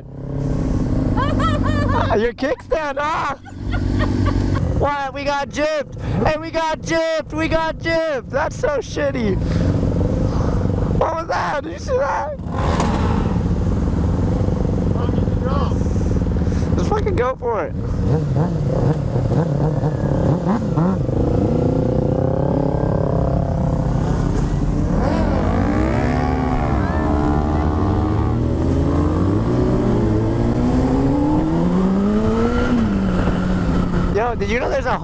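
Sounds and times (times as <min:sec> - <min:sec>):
motorcycle engine revving: 0:09.4 - 0:11.0, 0:12.3 - 0:35.0.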